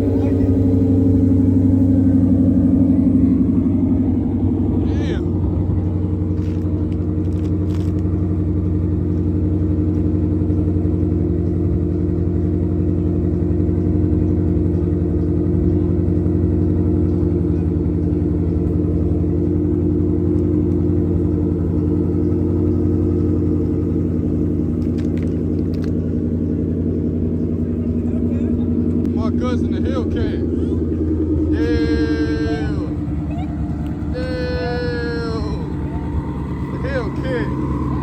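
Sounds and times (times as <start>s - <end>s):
vehicle engine running: 0.0s - 38.0s.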